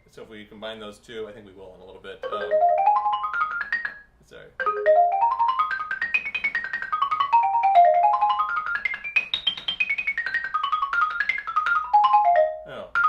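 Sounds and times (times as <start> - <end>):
xylophone arpeggio with mallets: 2.2 - 4.0, 4.6 - 13.0.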